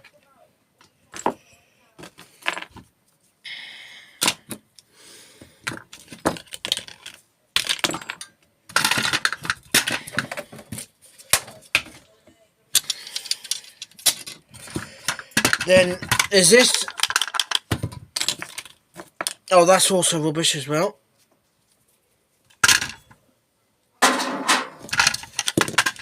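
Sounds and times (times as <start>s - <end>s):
metal parts clinking and rattling: 5.7s - 12.0s, 12.8s - 19.4s, 22.5s - 23.1s, 24.0s - 26.0s.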